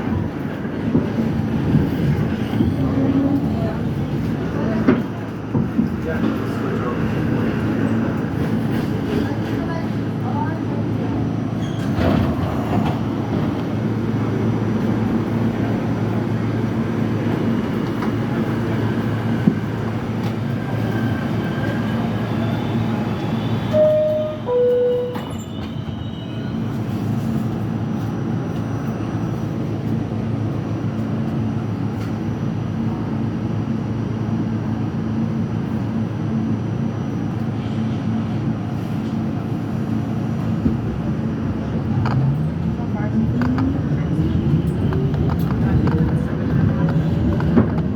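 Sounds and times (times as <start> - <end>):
subway train rumbling: 0.0 - 47.9
two-note tone: 23.7 - 25.2.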